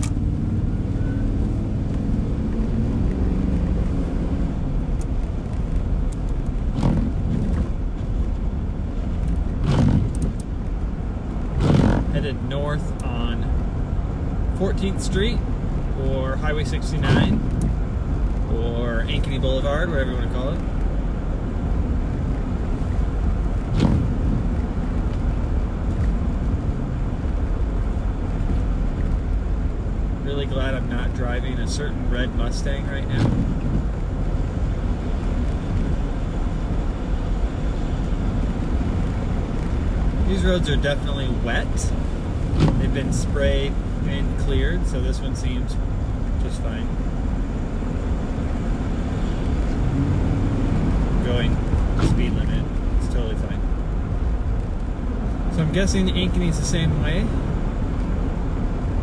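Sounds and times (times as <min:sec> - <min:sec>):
road and engine rumble: 0:00.0 - 0:59.0
windshield wipers scraping: 0:06.3 - 0:08.1, 0:09.0 - 0:10.5, 0:11.5 - 0:12.2, 0:17.0 - 0:17.8, 0:22.7 - 0:24.9, 0:33.1 - 0:34.0, 0:41.9 - 0:43.2.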